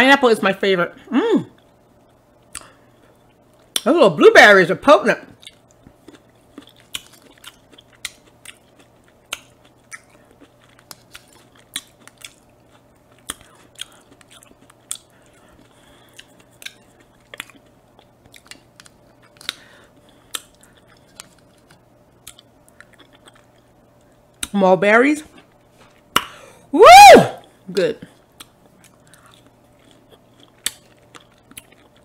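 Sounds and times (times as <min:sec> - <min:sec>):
wet chewing and mouth smacking: 0:05.4 - 0:24.6, 0:28.2 - 0:32.0.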